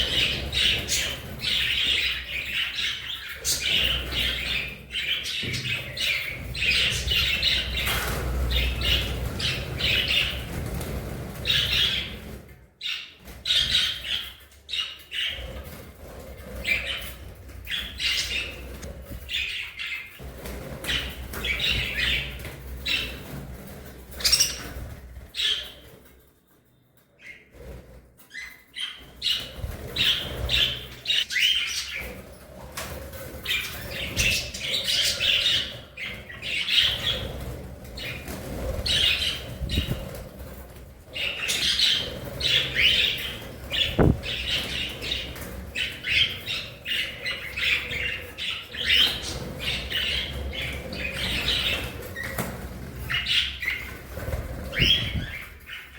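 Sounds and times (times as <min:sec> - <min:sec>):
budgerigars chirping and warbling: 0:00.0 - 0:26.0, 0:27.2 - 0:32.4, 0:33.1 - 0:40.5, 0:41.1 - 0:55.9
wing flaps: 0:41.5 - 0:45.7, 0:53.8 - 0:55.7.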